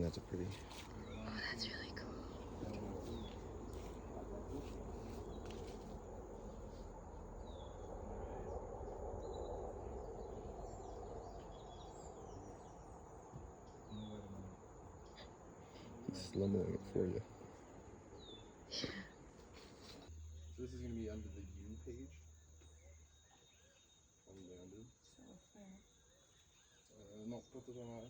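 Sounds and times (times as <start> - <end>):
high insect drone: 20.1 - 28.0.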